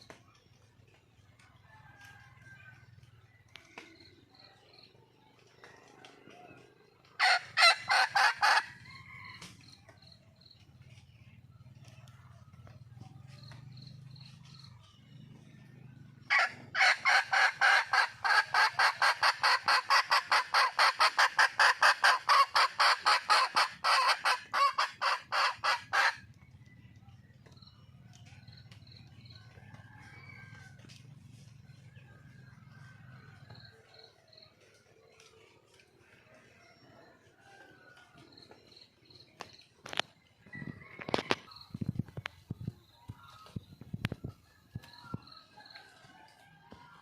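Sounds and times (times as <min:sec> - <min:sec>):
junglefowl hen calling: 0:05.6 - 0:09.6, 0:16.3 - 0:26.4.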